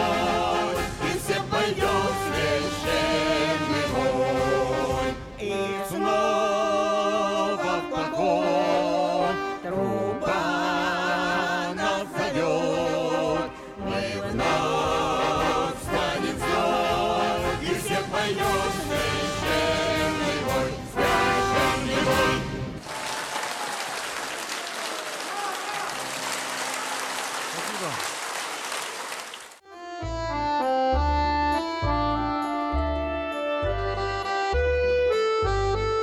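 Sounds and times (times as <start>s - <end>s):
choir singing: 0.0s - 23.0s
orchestra with brass: 0.0s - 23.4s, 29.7s - 36.0s.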